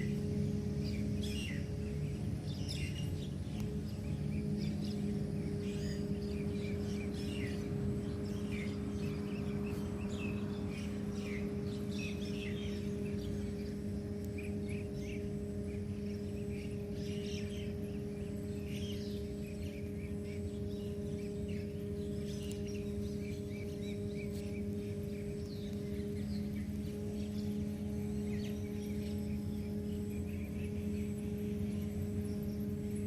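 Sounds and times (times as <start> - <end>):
birds chirping: 0.0 - 33.0
steady low hum: 0.0 - 33.0.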